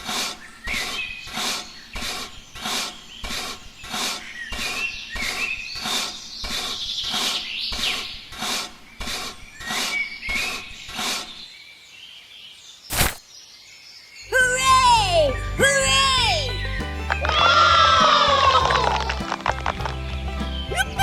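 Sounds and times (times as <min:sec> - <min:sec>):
bird chirps: 0:00.0 - 0:19.1
music with sliding tones and bass: 0:14.7 - 0:21.0.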